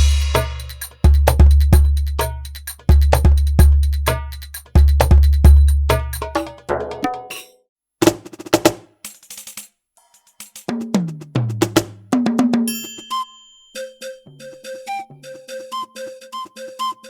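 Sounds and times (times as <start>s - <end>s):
tom drum fill: 0.0s - 7.3s, 10.7s - 12.7s
electronic drum kit: 0.0s - 9.6s, 10.5s - 12.8s.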